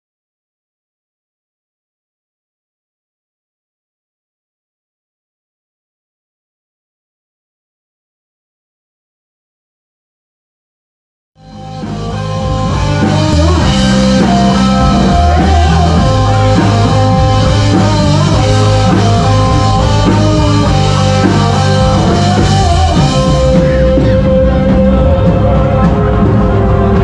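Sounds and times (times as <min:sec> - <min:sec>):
rock music with guitar and drums: 0:11.4 - 0:27.0.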